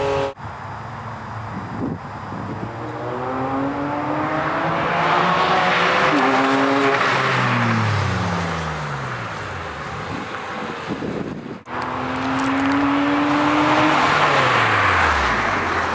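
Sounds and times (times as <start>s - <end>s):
sports car driving past: 2.5s - 9.6s.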